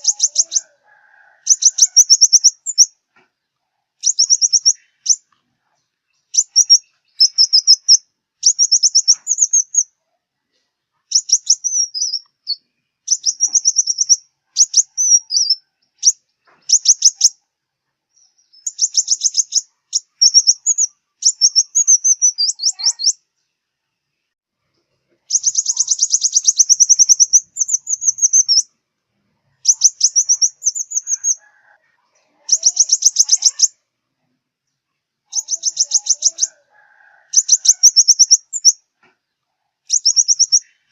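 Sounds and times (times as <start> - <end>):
sunbird trilling song: 0.0 - 0.8, 1.4 - 3.0, 4.0 - 5.3, 6.1 - 10.0, 11.1 - 17.4, 18.1 - 23.2, 25.2 - 28.7, 29.5 - 31.4, 32.4 - 33.8, 35.3 - 36.6, 37.3 - 38.8, 39.9 - 40.9.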